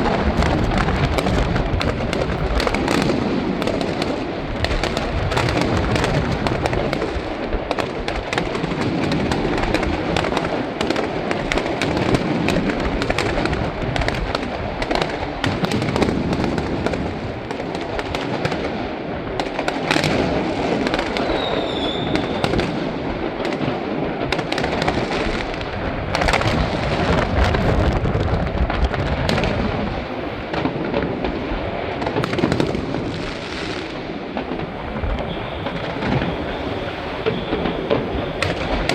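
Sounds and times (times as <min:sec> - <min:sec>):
fireworks bangs and crackling: 0:00.0 - 0:38.9
falling firework whistle: 0:21.0 - 0:23.0, 0:34.7 - 0:38.9.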